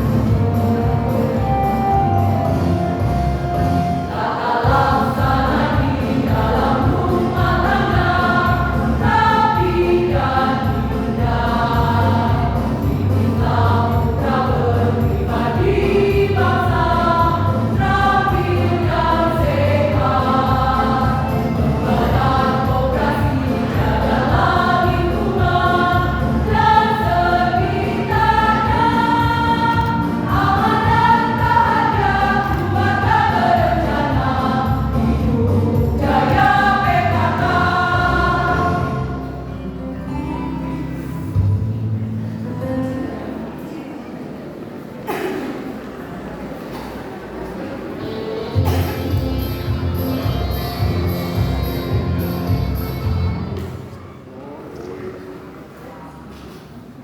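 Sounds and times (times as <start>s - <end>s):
choir singing in parts: 0.0s - 39.6s
instrumental accompaniment: 0.0s - 42.8s.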